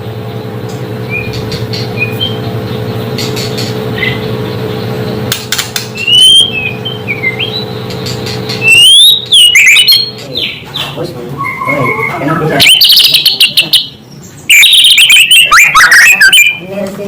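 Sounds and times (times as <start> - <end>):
steady low hum: 0.0 - 17.0
bird chirps: 1.0 - 16.7
loud rising bird whistles: 1.1 - 1.4, 6.0 - 7.8, 8.6 - 10.2, 11.4 - 16.6.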